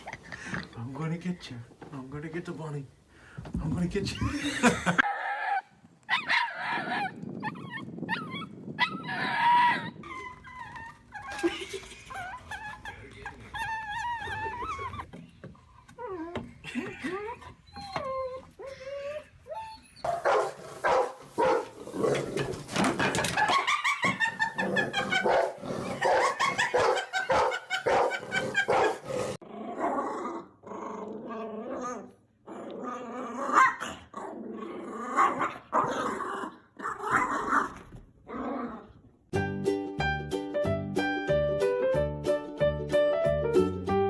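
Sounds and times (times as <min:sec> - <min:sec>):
dog barking and growling: 0:20.0 - 0:39.0.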